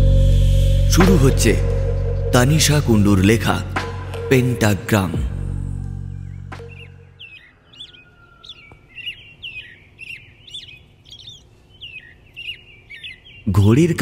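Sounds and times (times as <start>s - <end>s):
low background music: 0.0s - 7.3s
small birds chirping: 5.8s - 14.0s.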